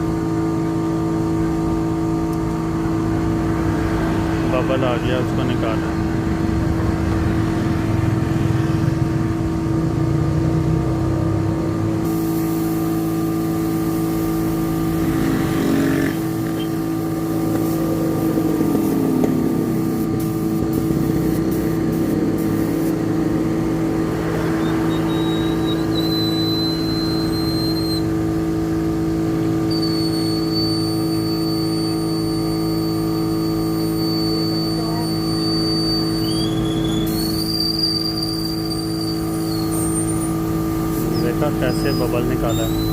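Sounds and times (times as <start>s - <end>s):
motor humming: 12.0s - 28.6s
sweeping sound falling and rising: 17.2s - 26.0s
thin high whistle: 24.4s - 28.1s, 29.7s - 40.4s, 41.0s - 42.9s.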